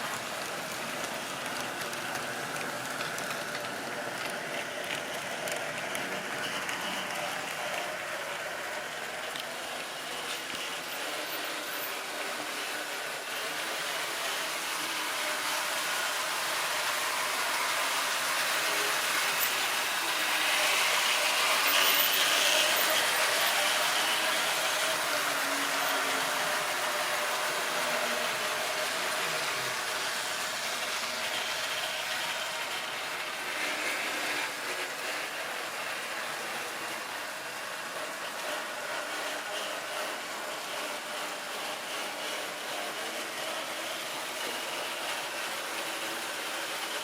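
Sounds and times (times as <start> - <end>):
wheels clicking over rail joints: 0.0 - 7.9
model train motor whirring: 0.0 - 47.0.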